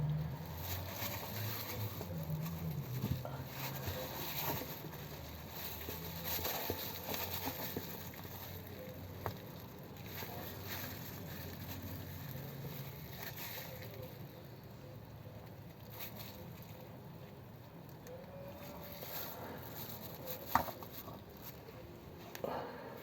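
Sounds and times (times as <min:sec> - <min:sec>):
hands clicking and rustling: 0:00.1 - 0:14.0.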